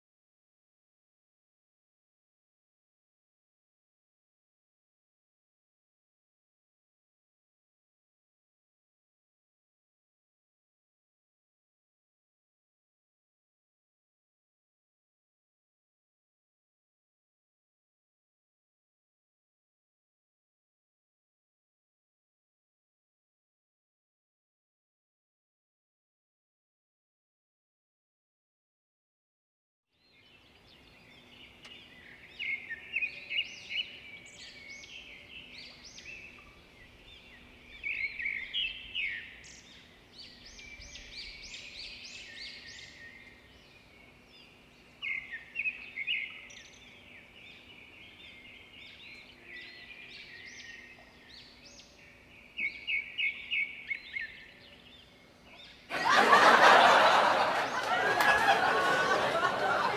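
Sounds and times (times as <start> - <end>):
small birds chirping: 30.0 - 55.9.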